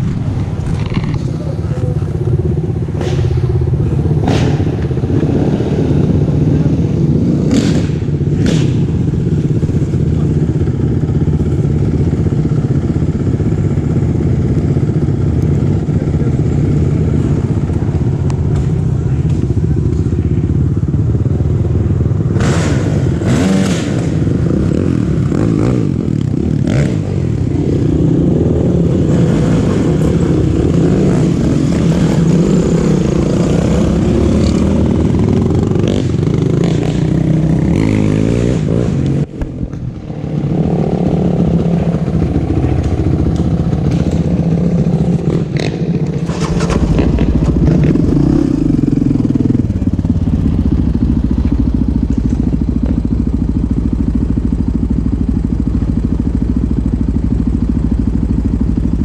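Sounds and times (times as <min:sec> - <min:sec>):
off-road engine revving: 0:00.0 - 0:21.3, 0:21.9 - 0:53.8.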